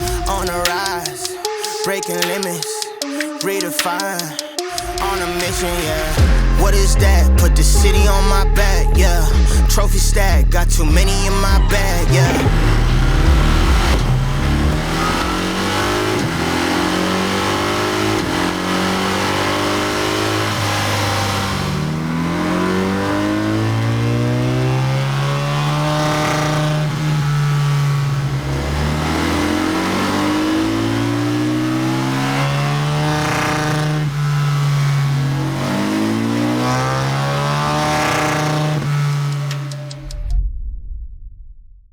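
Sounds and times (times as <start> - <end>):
motorcycle engine revving on a dyno: 11.8 - 40.0.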